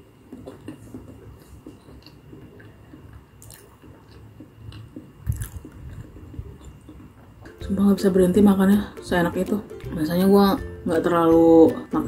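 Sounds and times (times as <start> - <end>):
person chewing food: 0.0 - 7.6.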